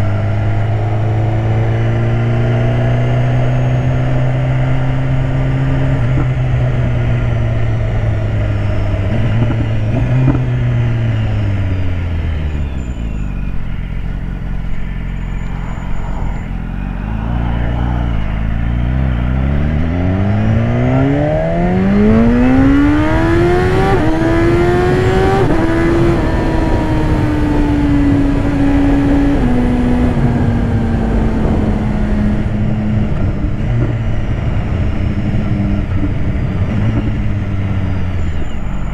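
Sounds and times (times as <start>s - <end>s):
motorcycle engine accelerating: 0.0s - 38.9s
wind rushing: 15.5s - 35.5s.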